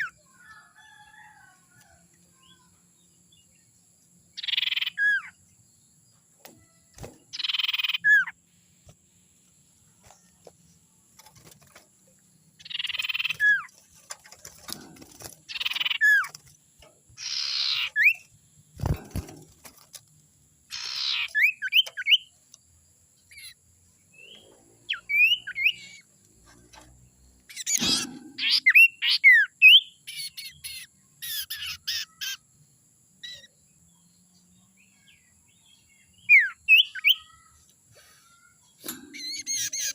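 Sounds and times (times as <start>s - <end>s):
bird rasping and whistling calls: 7.3s - 8.4s, 12.6s - 13.8s, 17.2s - 19.3s, 20.7s - 22.3s, 27.5s - 32.4s, 38.8s - 39.9s.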